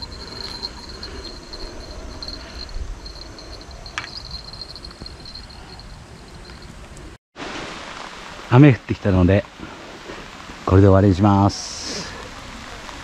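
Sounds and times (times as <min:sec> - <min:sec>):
low rumble: 0:00.0 - 0:06.8
insects trilling: 0:00.0 - 0:07.2.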